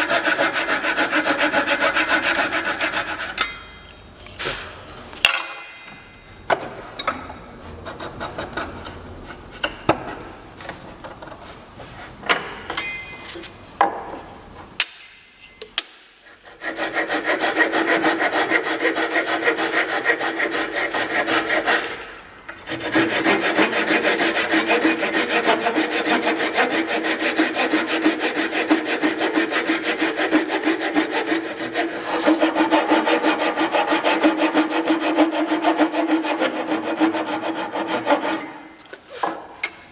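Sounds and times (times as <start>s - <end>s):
power tool rasping wood: 0.0s - 3.4s, 16.3s - 39.4s.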